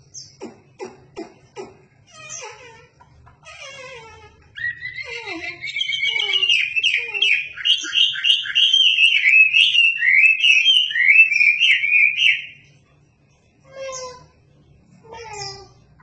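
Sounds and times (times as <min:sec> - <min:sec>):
songbird warbling: 0:00.0 - 0:12.6.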